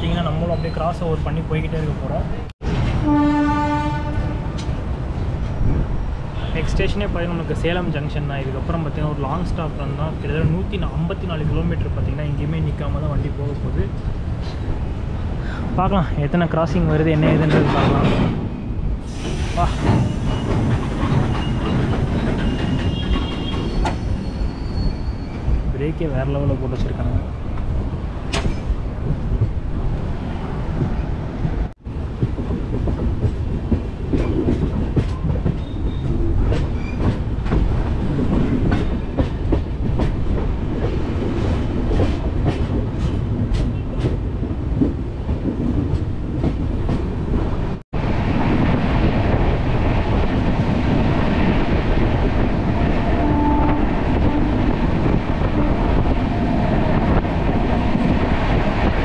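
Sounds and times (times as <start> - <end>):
train wheels rumbling on rails: 0.2 - 59.0.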